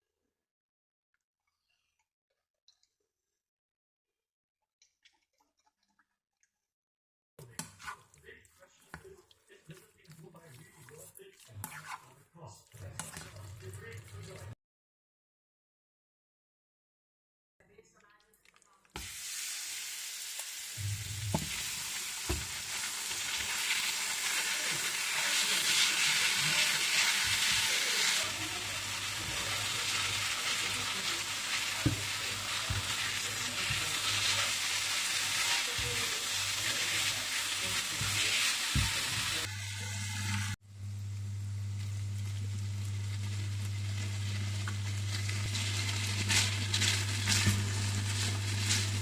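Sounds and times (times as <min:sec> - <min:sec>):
food sizzling in a pan: 0:18.9 - 0:49.0.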